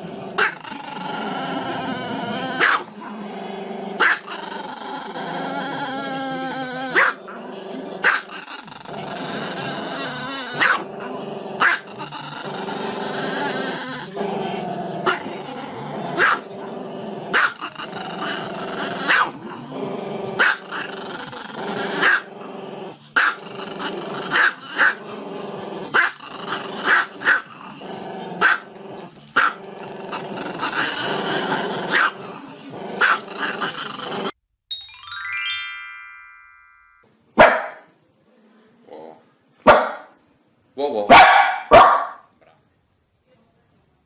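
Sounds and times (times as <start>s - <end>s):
dog growling: 0.0s - 34.4s
dog yappy barks: 2.6s - 2.9s, 4.0s - 4.2s, 10.6s - 10.8s, 11.6s - 11.8s, 16.2s - 16.4s, 17.4s - 17.6s, 19.1s - 19.4s, 26.0s - 26.2s, 26.9s - 27.4s, 28.4s - 28.6s, 31.9s - 32.1s, 33.0s - 33.2s, 37.4s - 37.9s, 39.6s - 40.1s, 41.1s - 42.3s.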